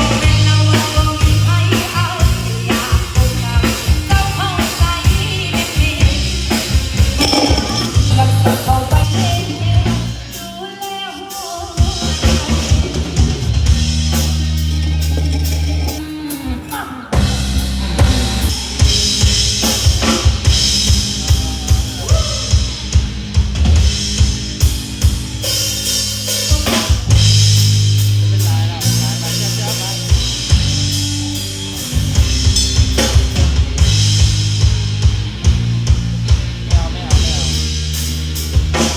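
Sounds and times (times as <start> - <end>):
live band playing: 0.0 - 38.9
drum kit hits: 3.2 - 10.1.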